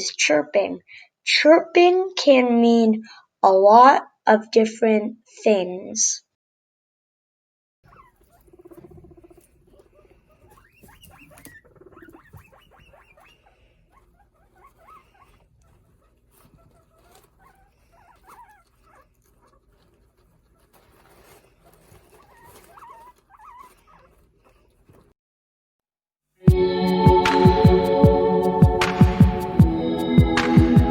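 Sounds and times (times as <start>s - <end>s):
guinea pig chirping: 7.9s - 24.6s.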